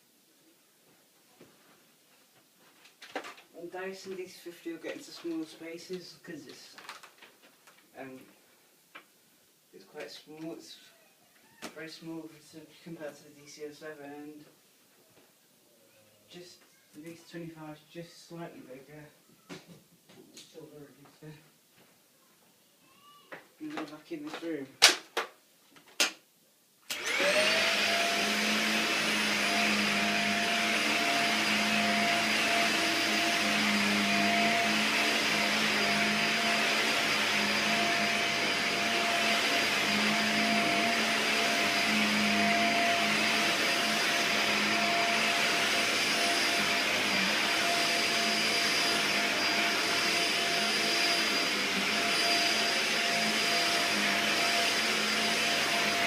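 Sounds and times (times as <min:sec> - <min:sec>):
vacuum cleaner motor whining: 0:26.9 - 0:56.0.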